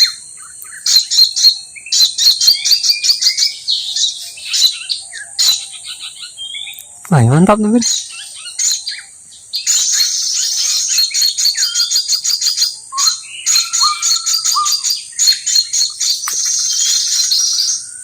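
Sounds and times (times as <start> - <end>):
insect drone: 0.0 - 18.0
small birds chirping: 0.0 - 18.0
low whistled bird notes: 7.4 - 18.0.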